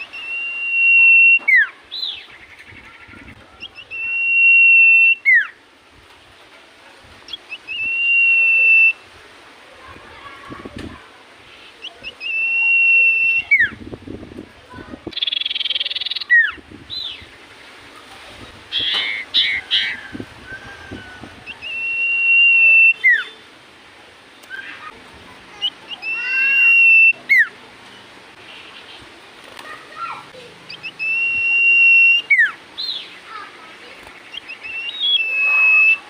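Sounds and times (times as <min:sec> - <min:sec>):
bird whistling and chirping: 0:00.0 - 0:02.2, 0:03.6 - 0:05.6, 0:07.3 - 0:09.0, 0:11.8 - 0:13.8, 0:15.2 - 0:17.2, 0:18.8 - 0:23.4, 0:25.9 - 0:27.5, 0:30.7 - 0:33.1, 0:34.3 - 0:36.0.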